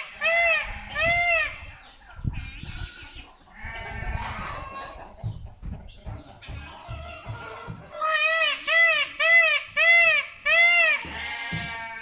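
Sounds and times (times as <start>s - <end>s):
bumps and rustle near microphone: 3.6s - 8.0s
goats bleating: 11.0s - 12.0s.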